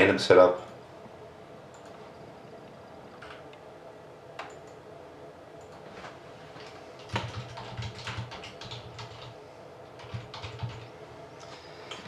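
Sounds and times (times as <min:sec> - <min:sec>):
computer keyboard typing: 0:04.4 - 0:04.8, 0:06.6 - 0:09.4, 0:10.0 - 0:10.9.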